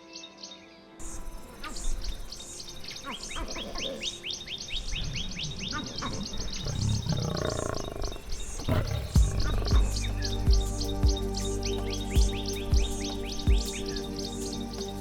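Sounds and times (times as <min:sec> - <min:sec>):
birds chirping: 0:01.0 - 0:15.0
low animal growl: 0:06.1 - 0:10.7.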